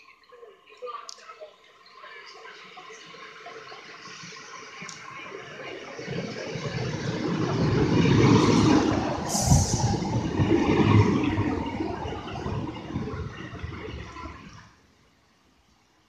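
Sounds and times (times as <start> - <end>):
diesel railcar engine: 2.6 - 14.8
train wheels on rails: 3.9 - 14.6
brief hiss: 9.3 - 10.1.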